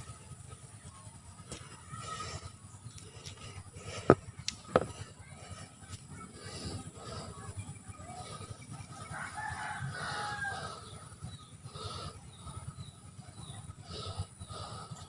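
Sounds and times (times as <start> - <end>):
rooster crowing: 9.1 - 10.8.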